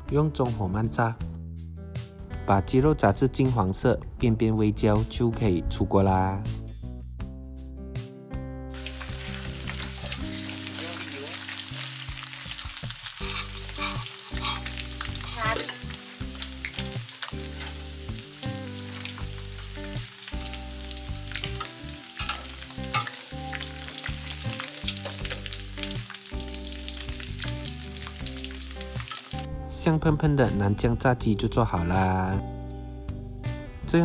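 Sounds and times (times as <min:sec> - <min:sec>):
chicken deep-frying in oil: 0:08.7 - 0:29.5
metal ladle scraping wok: 0:08.8 - 0:12.0, 0:13.0 - 0:17.9, 0:21.4 - 0:23.3.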